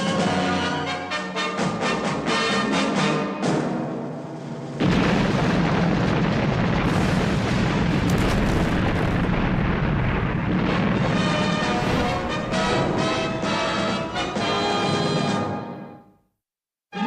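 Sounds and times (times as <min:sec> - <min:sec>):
orchestral music: 0:00.0 - 0:04.7, 0:11.4 - 0:16.0
explosion blast and rumble: 0:04.8 - 0:14.7.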